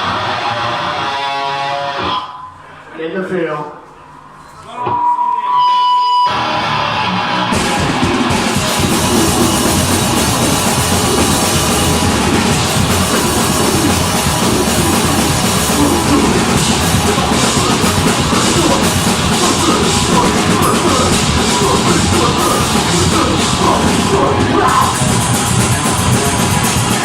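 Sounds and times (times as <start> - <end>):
distorted guitars and bass: 0.0 - 2.6, 5.6 - 27.0
fast busy drumming: 7.5 - 27.0.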